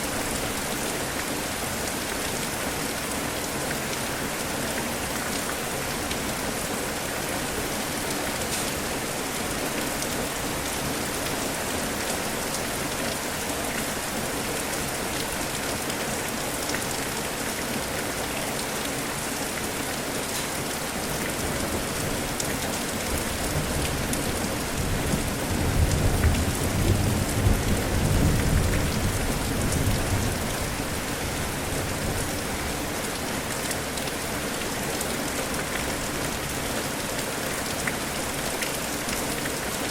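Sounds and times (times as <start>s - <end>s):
steady rain: 0.0s - 39.9s
low rumble of thunder: 25.0s - 30.8s.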